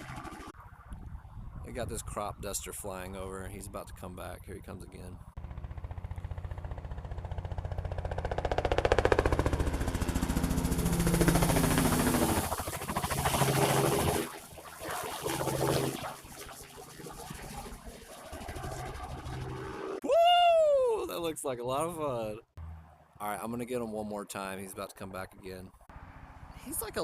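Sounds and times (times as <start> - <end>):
helicopter rotor chopping: 0.0 - 0.6, 3.0 - 20.0.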